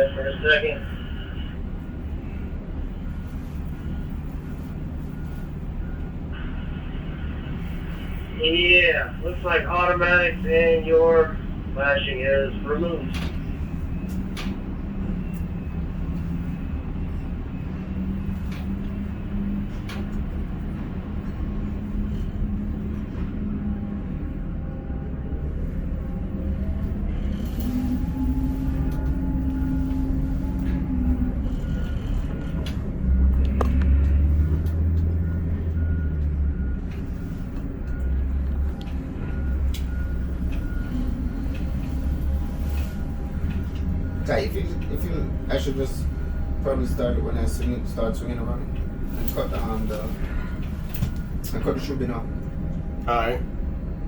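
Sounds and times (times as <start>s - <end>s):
crane machinery rumble: 0.0s - 54.0s.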